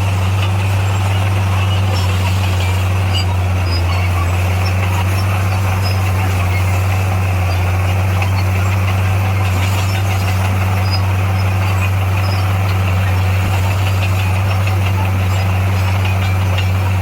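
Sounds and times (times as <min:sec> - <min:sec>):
bulldozer engine droning: 0:00.0 - 0:17.0.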